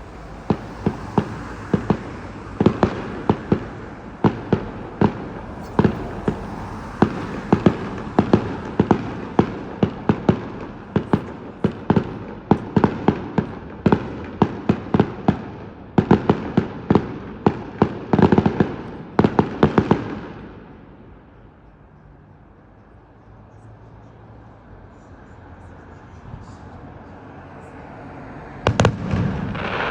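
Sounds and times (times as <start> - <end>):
fireworks bursting: 0.0 - 20.4, 28.7 - 29.9
fireworks crackle and rumble: 0.0 - 21.4, 28.6 - 29.9.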